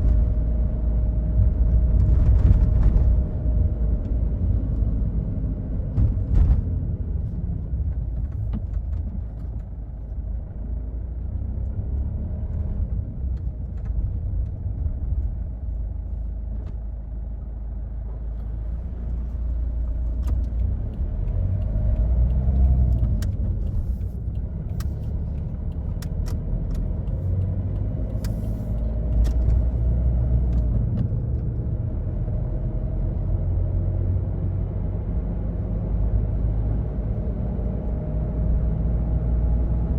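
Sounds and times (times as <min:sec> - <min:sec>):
tyre and road rumble: 0:00.0 - 0:10.6
car engine drone: 0:00.0 - 0:39.9.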